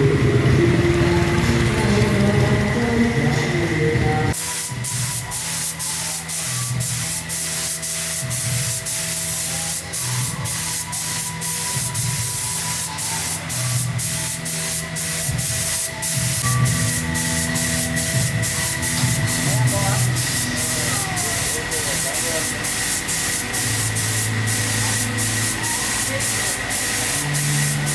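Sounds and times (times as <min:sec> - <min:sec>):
air spray tool hissing: 0:04.4 - 0:27.9
motor humming: 0:06.5 - 0:27.9.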